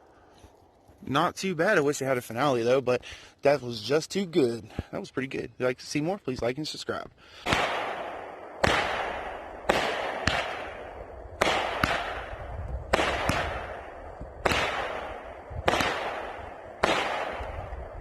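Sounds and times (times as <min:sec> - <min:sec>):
fireworks bangs echoing: 0:07.4 - 0:18.0.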